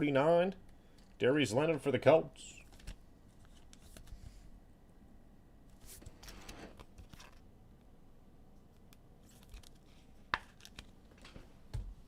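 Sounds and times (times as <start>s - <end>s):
cards sliding and rustling: 2.7s - 4.4s, 5.7s - 7.4s.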